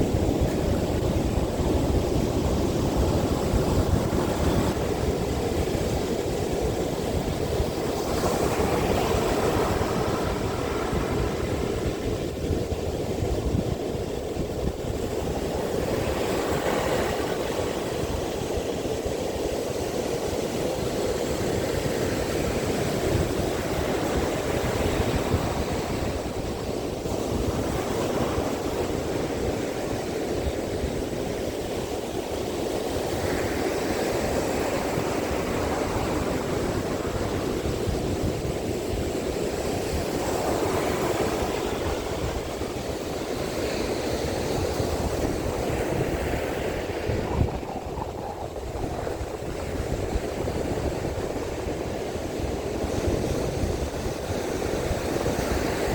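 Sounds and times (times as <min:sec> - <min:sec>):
surf washing onto beach: 0:00.0 - 0:55.9
wind buffeting microphone: 0:00.0 - 0:55.9.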